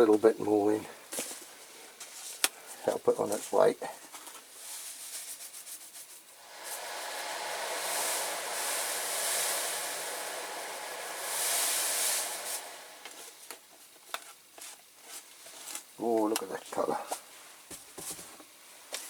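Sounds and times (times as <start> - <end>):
granules pouring with hiss and rattle: 4.6 - 13.7.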